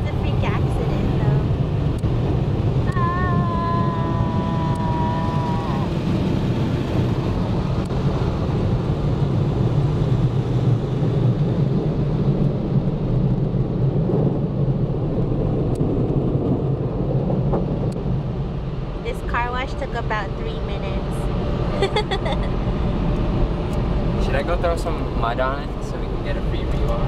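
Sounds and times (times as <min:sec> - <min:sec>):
car wash blowers roaring: 0:00.0 - 0:27.0.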